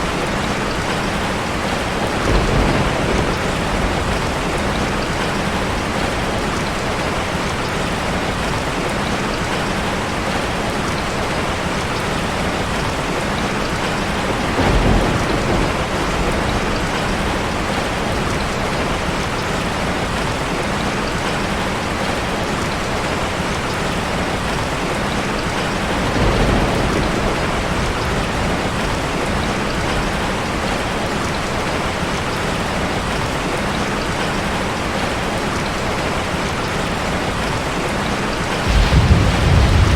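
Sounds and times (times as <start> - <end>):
heavy rain drumming on a car: 0.0 - 39.9
low rumbles: 38.6 - 39.9.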